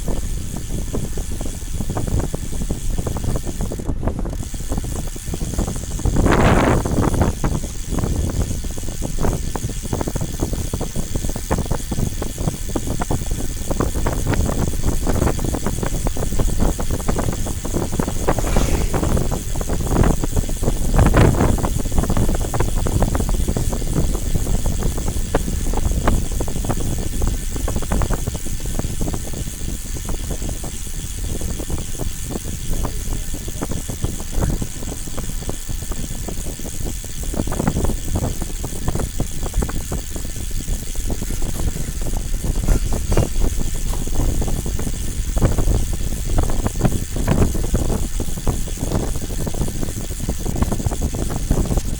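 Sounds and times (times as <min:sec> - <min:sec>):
vehicle ride rumble: 0:13.2 - 0:21.6, 0:31.9 - 0:51.9.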